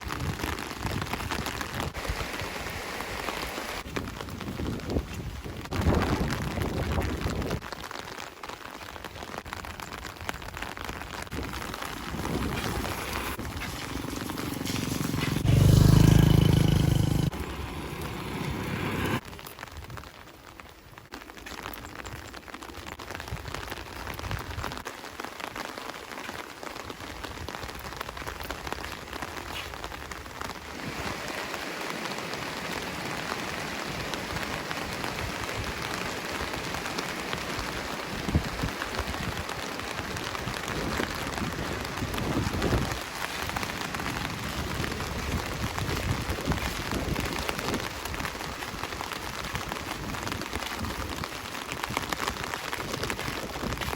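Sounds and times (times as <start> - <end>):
rain pattering on surfaces: 0.0 - 53.9.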